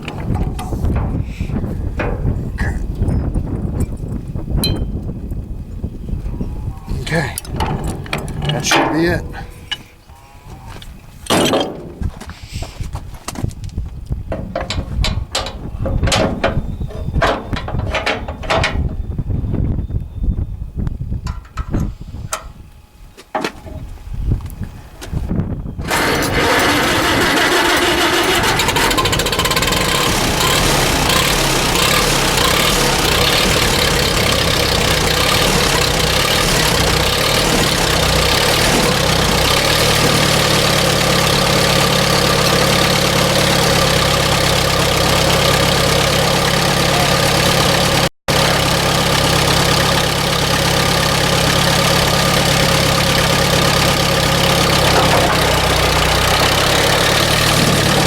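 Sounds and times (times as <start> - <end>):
tractor engine running: 0.0 - 12.2, 13.5 - 20.2, 24.5 - 58.0
clicks and knocks: 7.4 - 9.8, 54.5 - 58.0.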